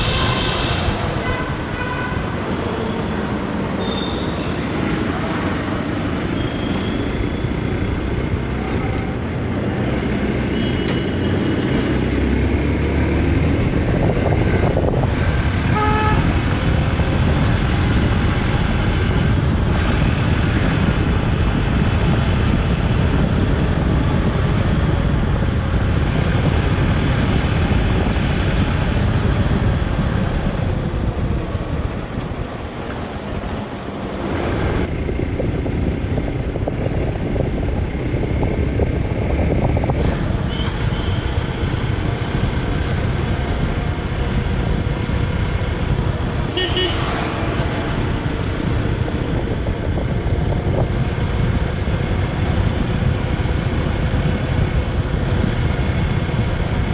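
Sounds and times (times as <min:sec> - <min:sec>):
vehicle horn: 0:00.0 - 0:02.3, 0:03.8 - 0:04.6, 0:15.7 - 0:16.3, 0:46.5 - 0:47.1
wind and road noise: 0:00.0 - 0:56.9.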